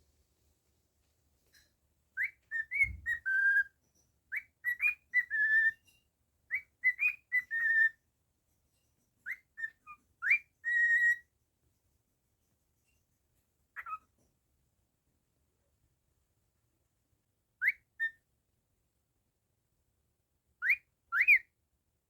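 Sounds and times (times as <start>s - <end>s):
cockatiel whistling a tune: 2.2s - 3.7s, 4.3s - 5.8s, 6.5s - 8.0s, 9.3s - 11.2s, 13.8s - 14.0s, 17.6s - 18.2s, 20.6s - 21.5s.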